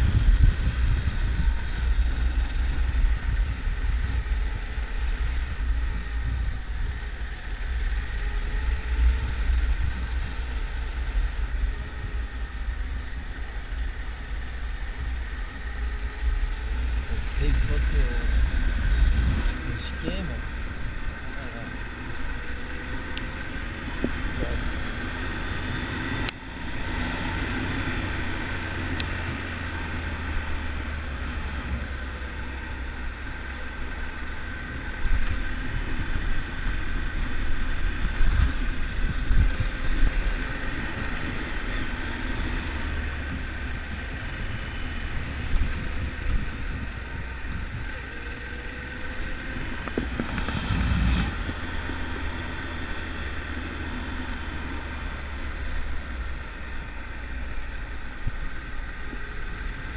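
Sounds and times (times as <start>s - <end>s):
wind on microphone: 0.0s - 14.0s, 15.0s - 21.2s, 34.6s - 53.6s
motorcycle engine running: 0.0s - 59.9s
road rumble: 0.0s - 59.9s.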